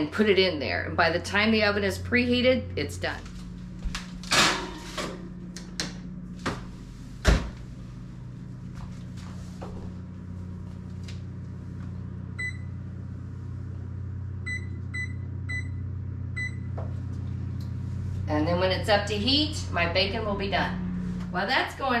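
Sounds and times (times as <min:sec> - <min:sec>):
steady low hum: 0:00.0 - 0:22.0
oven keypad beeps: 0:12.4 - 0:12.7, 0:14.4 - 0:15.8, 0:16.4 - 0:16.8.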